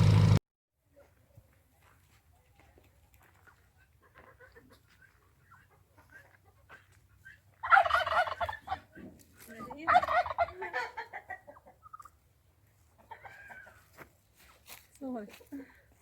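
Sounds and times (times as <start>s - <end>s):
fowl warbling calls: 4.2s - 8.9s, 9.8s - 12.2s.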